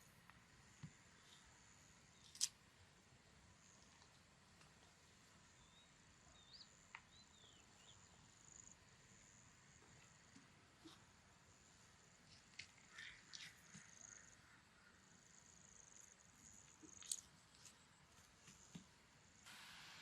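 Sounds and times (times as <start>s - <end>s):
faint bird chirps: 4.8s - 11.1s, 12.8s - 18.1s.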